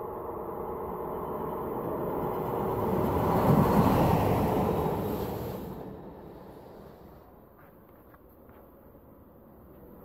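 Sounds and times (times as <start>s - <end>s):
train passing: 0.0s - 7.5s.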